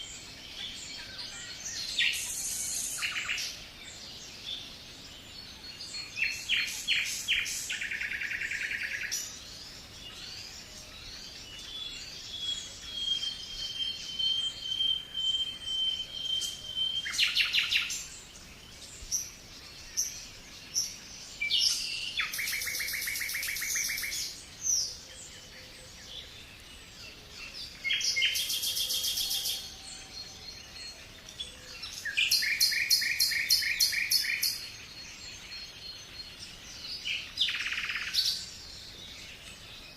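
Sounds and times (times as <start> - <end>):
faint bird chirps: 0.0 - 39.9
songbird trilling: 19.9 - 26.4, 27.8 - 29.8, 30.6 - 36.2, 37.0 - 38.6.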